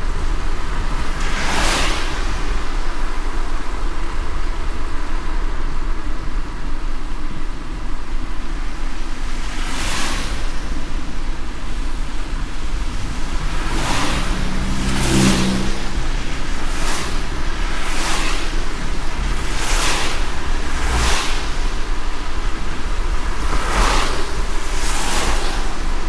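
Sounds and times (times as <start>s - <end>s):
road rumble: 0.0s - 26.0s
wet tyre hiss: 0.0s - 26.0s
brief whoosh: 12.7s - 22.4s.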